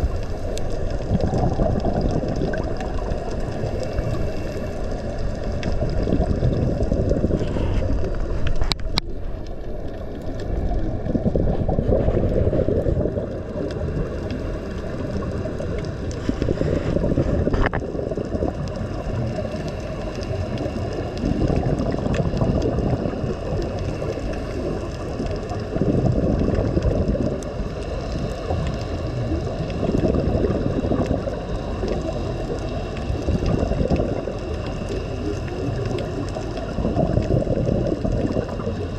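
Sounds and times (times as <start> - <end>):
muffled gurgling water: 0.0 - 38.9
faint clicks: 0.1 - 10.8.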